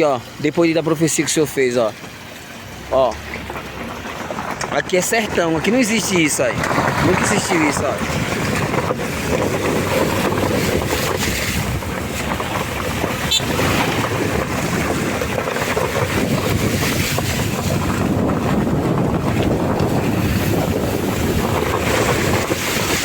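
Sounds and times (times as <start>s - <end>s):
rainwater rushing over road: 0.0s - 23.0s
wind buffeting microphone: 1.2s - 23.0s.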